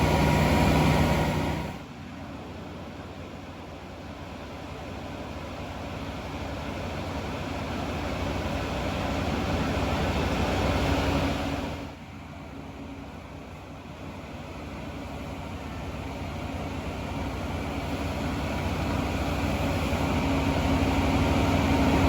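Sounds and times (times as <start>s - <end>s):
vehicle engine running: 0.0s - 2.9s.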